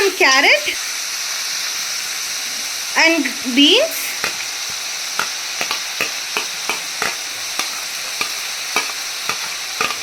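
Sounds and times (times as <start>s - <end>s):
food sizzling in a wok: 0.0s - 10.0s
spatula scraping a wok: 4.2s - 10.0s.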